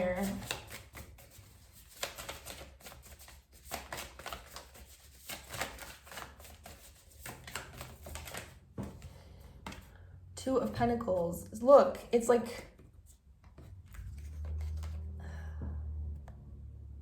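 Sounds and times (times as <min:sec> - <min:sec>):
cards being shuffled: 0:00.0 - 0:10.0, 0:12.7 - 0:15.2.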